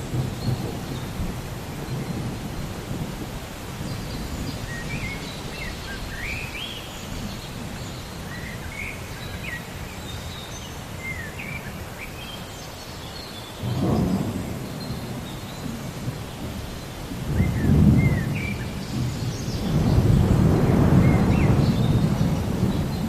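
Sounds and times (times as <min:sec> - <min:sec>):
thunder rumbling: 0:00.0 - 0:08.3, 0:13.6 - 0:23.0
rain hissing: 0:00.0 - 0:23.0
small birds chirping: 0:03.6 - 0:23.0.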